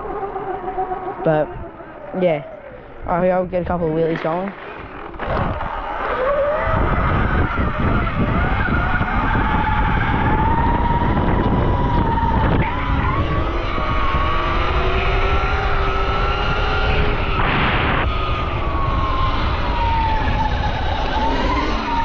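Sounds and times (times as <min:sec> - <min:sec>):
motorbike engine revving: 0:04.2 - 0:22.0.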